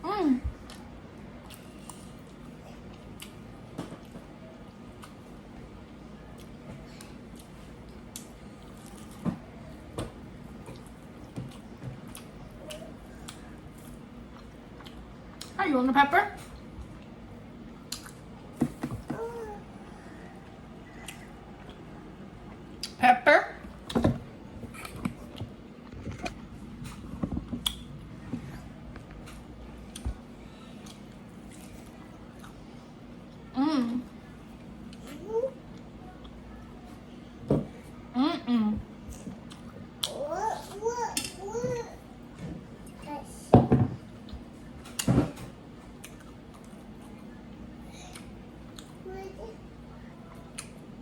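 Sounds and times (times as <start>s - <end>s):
low steady hum: 0.0s - 51.0s
wet chewing and smacking: 0.6s - 5.4s, 10.5s - 15.6s, 16.5s - 18.4s, 24.7s - 27.9s, 39.0s - 40.2s, 45.9s - 47.3s, 48.1s - 49.0s
person chewing: 1.4s - 3.4s, 10.7s - 15.5s, 17.8s - 18.3s, 20.9s - 21.9s, 46.0s - 47.2s.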